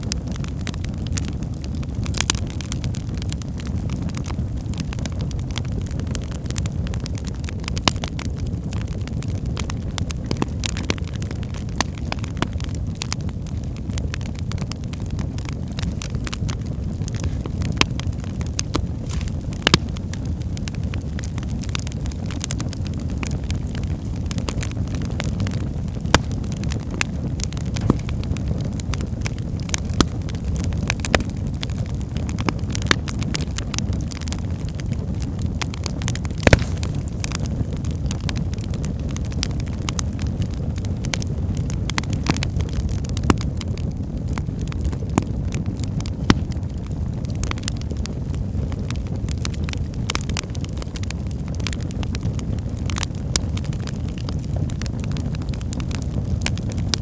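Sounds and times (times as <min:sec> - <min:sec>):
fire rumbling: 0:00.0 - 0:57.0
logs crackling and popping: 0:00.0 - 0:57.0.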